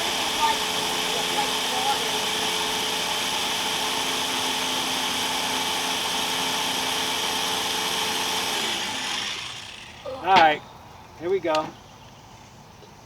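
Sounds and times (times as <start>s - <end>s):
blender running: 0.0s - 10.4s.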